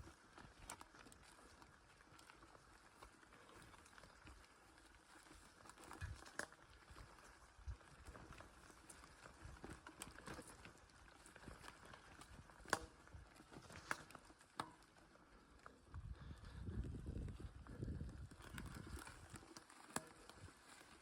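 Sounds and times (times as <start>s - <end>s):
campfire crackling and snapping: 11.0s - 14.8s.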